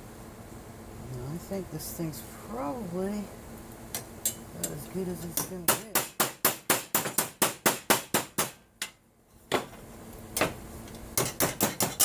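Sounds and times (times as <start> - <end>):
hammer tapping on aluminum: 4.0 - 9.8, 11.2 - 12.0.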